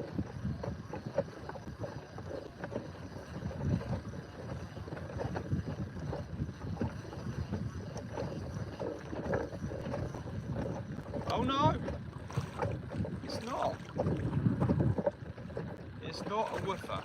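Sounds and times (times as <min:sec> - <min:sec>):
wind buffeting microphone: 0:00.0 - 0:17.0
faint clicks and knocks: 0:08.8 - 0:13.1.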